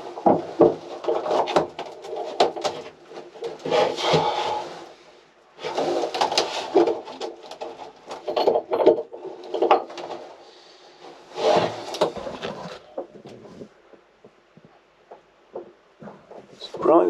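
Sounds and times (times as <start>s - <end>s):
wooden boards scraping and creaking: 0.0s - 16.9s.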